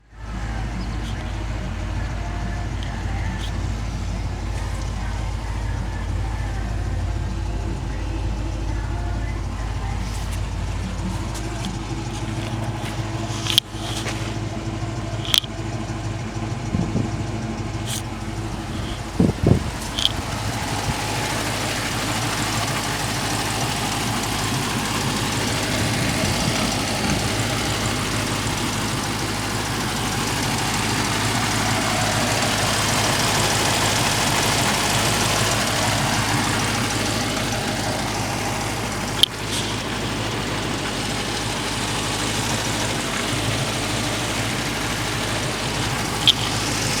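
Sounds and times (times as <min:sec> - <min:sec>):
car engine idling: 0:00.0 - 0:47.0
sharp clicks: 0:15.2 - 0:15.6, 0:17.9 - 0:20.5, 0:45.8 - 0:47.0.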